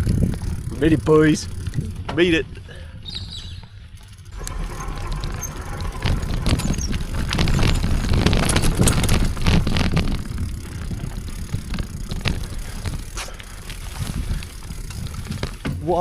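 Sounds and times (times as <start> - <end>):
bicycle riding on dirt trail: 0.0 - 16.0
bike rattles and knocks: 0.0 - 16.0.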